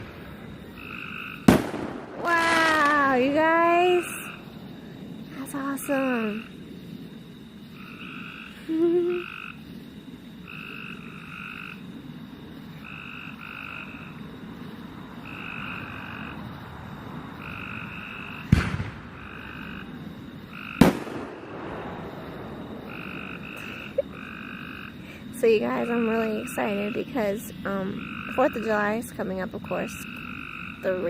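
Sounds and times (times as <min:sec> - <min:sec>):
distant firework bangs: 0:00.0 - 0:05.2, 0:17.5 - 0:24.2
night chorus of chirping calls: 0:00.0 - 0:31.0.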